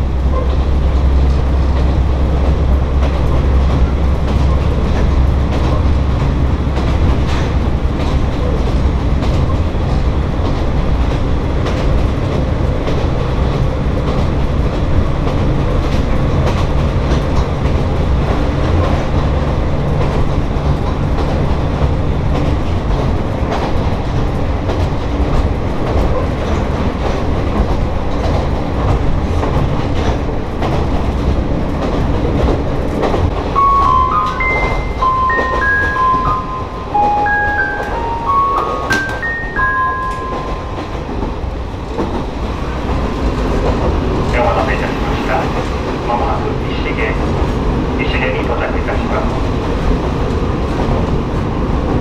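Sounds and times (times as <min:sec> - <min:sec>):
train engine drone: 0:00.0 - 0:52.0
wheels clacking over rail joints: 0:00.2 - 0:47.9.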